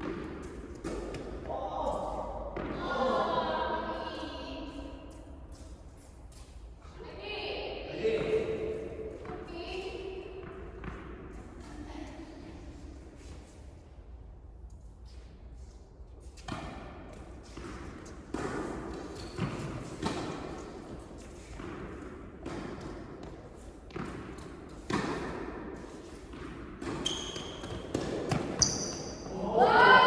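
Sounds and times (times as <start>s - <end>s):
tennis ball hits and bounces: 0.0s - 2.9s, 16.3s - 28.8s
shoe squeaks: 26.9s - 29.3s.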